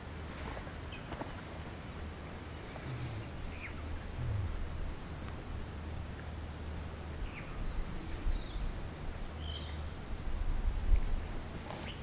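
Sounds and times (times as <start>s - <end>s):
steady low rumble: 2.7s - 9.3s.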